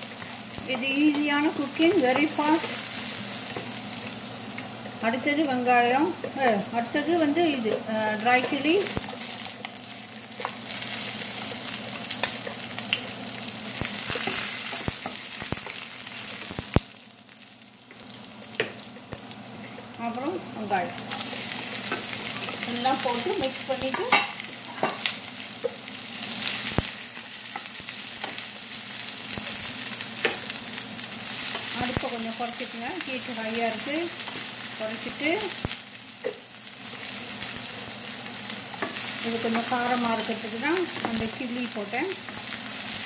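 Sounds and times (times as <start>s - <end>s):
garlic sizzling in oil: 0.0s - 43.0s.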